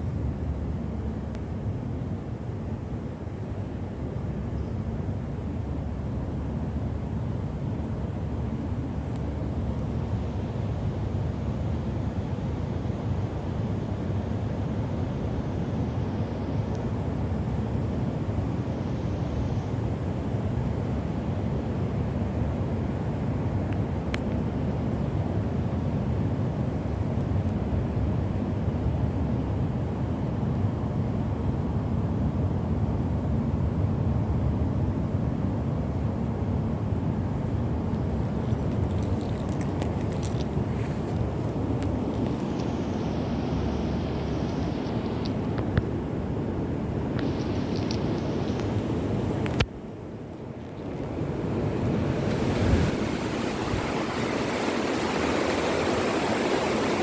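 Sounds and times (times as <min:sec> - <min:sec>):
heavy rain with wind: 0:50.9 - 0:57.0.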